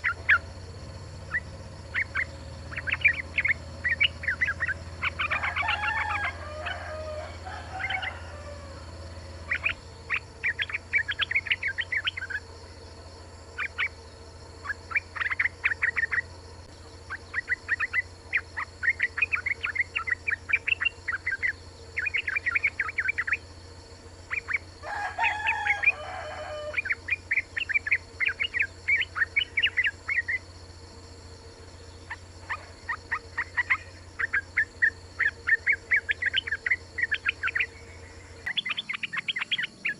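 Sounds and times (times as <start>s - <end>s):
bird rapid high chattering: 0.0s - 8.2s, 9.4s - 12.5s, 13.5s - 30.5s, 31.7s - 39.9s
longer lower bird call: 0.0s - 39.9s
steady low hum: 0.0s - 39.9s.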